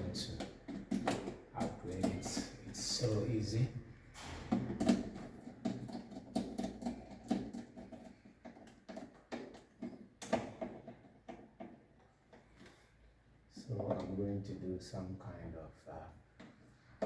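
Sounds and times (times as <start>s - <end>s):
plastic clicks of circuit breakers: 0.0s - 3.3s.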